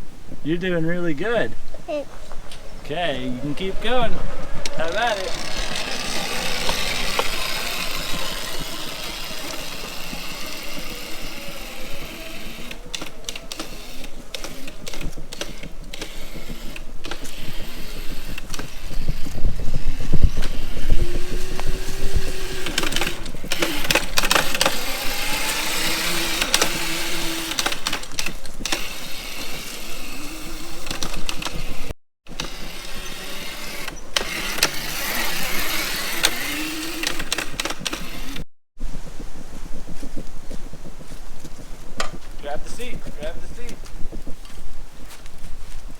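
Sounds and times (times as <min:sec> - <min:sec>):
electric motor whining: 0:02.3 - 0:38.4
rushing noise: 0:02.4 - 0:09.8.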